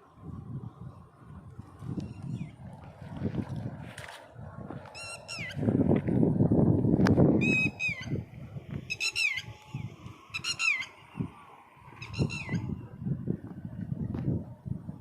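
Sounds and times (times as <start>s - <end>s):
low rumbling noise: 0.0s - 15.0s
bird calling: 8.8s - 12.8s.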